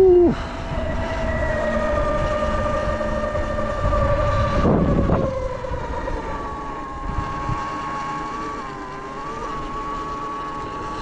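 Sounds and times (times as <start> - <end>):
wind rushing on microphone: 0.0 - 8.8
electric motor whining: 0.0 - 11.0.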